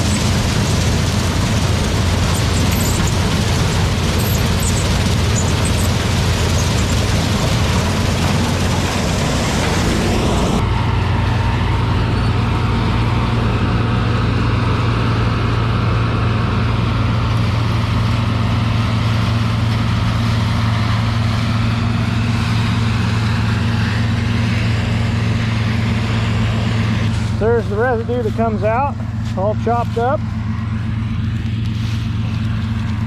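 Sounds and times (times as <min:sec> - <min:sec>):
combine harvester running: 0:00.0 - 0:33.0.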